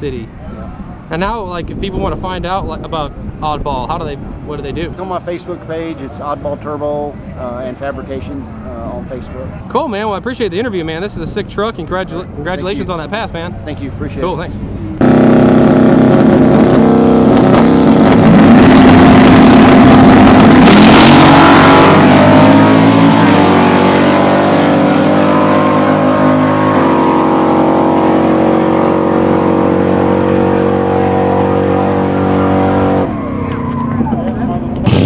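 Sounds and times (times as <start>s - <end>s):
truck engine running loud: 14.6s - 35.0s.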